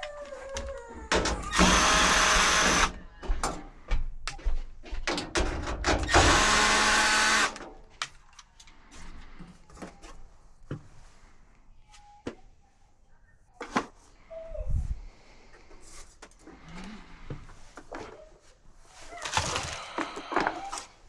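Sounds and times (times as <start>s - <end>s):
power tool running: 1.4s - 3.0s, 6.0s - 7.6s.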